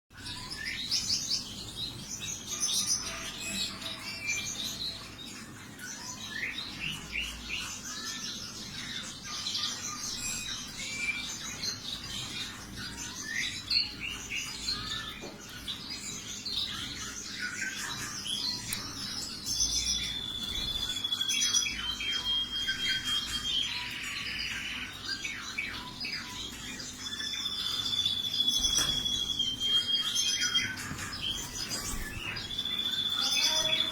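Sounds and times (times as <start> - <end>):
canaries chirping and singing: 0.1 - 33.9
long whistled bird notes: 18.7 - 26.2, 26.9 - 33.9.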